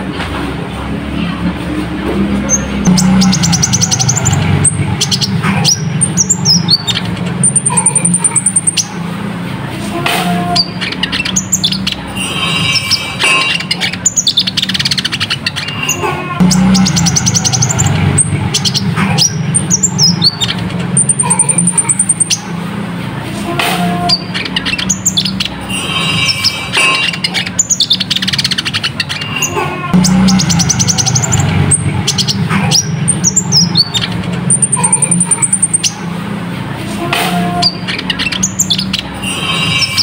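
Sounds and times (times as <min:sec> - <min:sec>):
low hum: 0:01.1 - 0:11.3, 0:15.6 - 0:24.5, 0:29.8 - 0:38.0.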